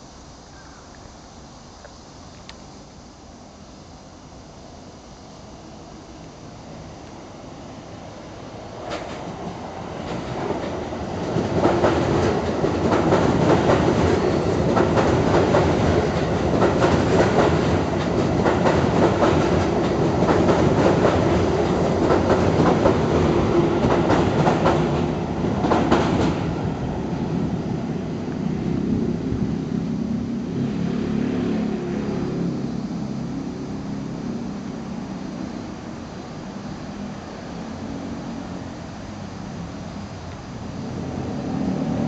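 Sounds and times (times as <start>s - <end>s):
low train rumble: 2.6s - 42.0s
train wheels clickety-clack: 8.7s - 26.7s.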